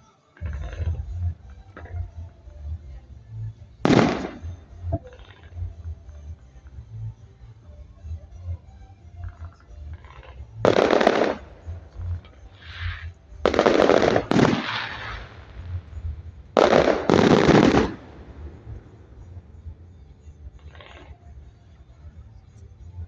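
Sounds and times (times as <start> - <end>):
fireworks bursting: 3.8 - 5.6, 10.0 - 19.5.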